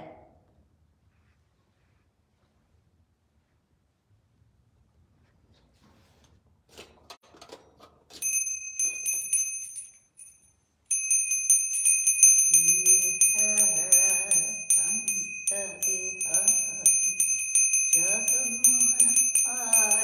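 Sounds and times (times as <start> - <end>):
hand bell ringing rapidly: 8.2 - 20.0.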